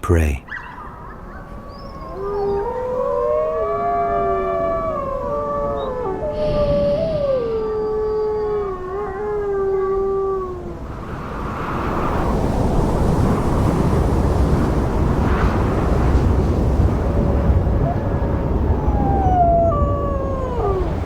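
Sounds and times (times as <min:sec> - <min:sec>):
wolves howling: 0:01.7 - 0:10.8, 0:17.6 - 0:21.0.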